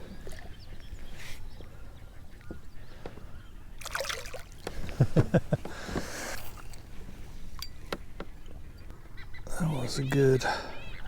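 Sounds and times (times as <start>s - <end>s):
water splashing beside kayak: 3.8s - 6.6s.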